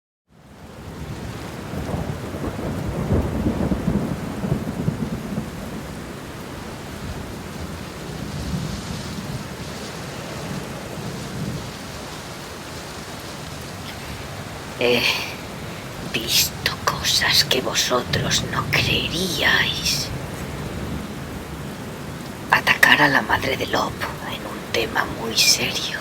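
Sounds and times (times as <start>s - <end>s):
heavy rain: 0.3s - 26.0s
low rumble of thunder: 0.8s - 11.8s, 18.1s - 22.5s.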